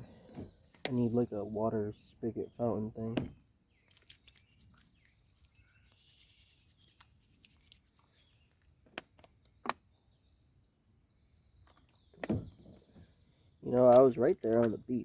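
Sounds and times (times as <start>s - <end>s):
hands rubbing with soap: 3.9s - 8.2s.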